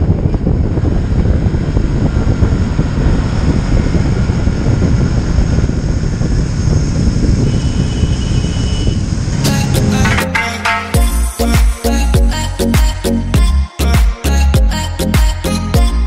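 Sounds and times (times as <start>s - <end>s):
wind buffeting microphone: 0.0s - 10.4s
motorcycle engine running: 0.0s - 13.6s.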